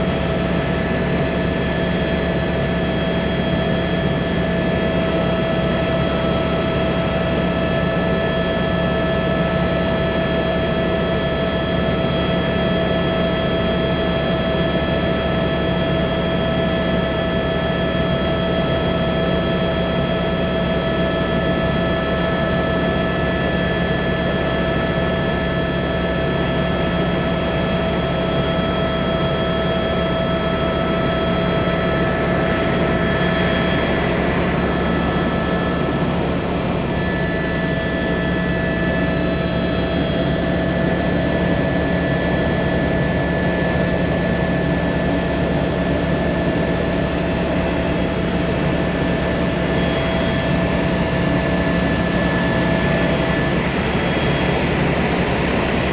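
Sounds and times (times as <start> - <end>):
helicopter engine and rotor noise: 0.0 - 55.9
constant whining tones: 15.4 - 55.9.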